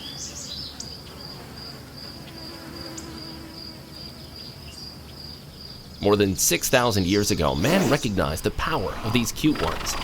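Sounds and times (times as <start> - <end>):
crickets chirping: 0.0 - 6.1.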